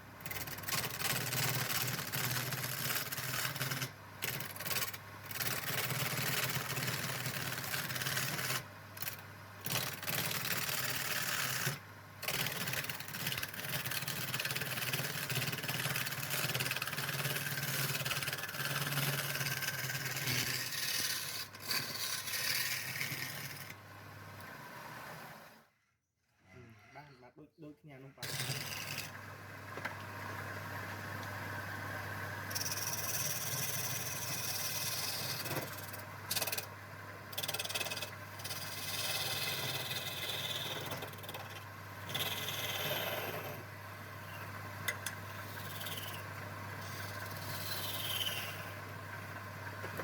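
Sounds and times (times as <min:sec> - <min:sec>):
power tool grinding wood: 0:00.2 - 0:23.8, 0:28.2 - 0:29.2, 0:32.5 - 0:36.7, 0:37.3 - 0:43.7, 0:45.2 - 0:50.0.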